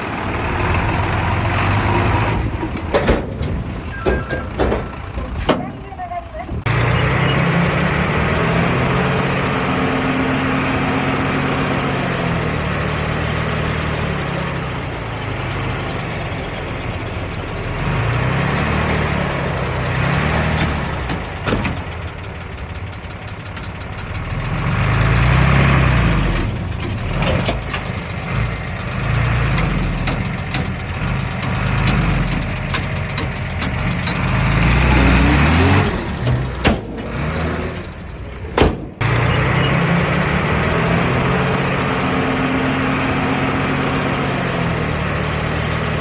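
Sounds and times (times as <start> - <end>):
diesel engine working: 0.0 - 46.0
sharp metallic knocks: 2.5 - 7.7, 29.4 - 40.0.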